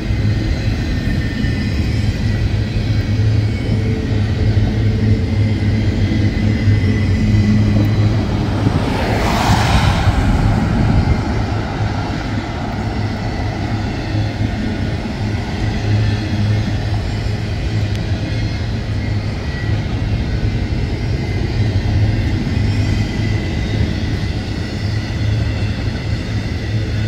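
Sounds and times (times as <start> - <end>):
diesel locomotive engine drone: 0.0 - 27.0
train rumble: 0.0 - 27.0
brief rushing swell: 7.3 - 13.5.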